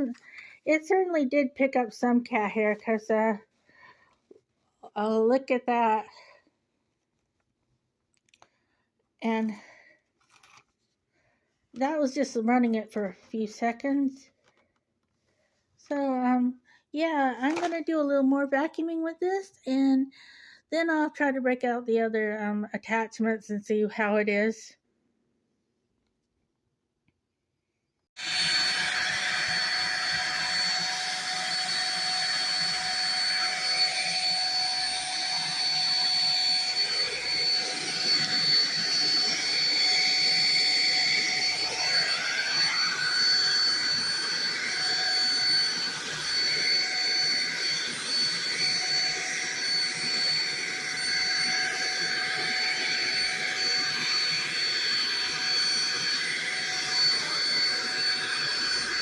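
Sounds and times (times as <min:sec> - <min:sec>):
stick vacuum running: 0:28.2 - 0:59.0.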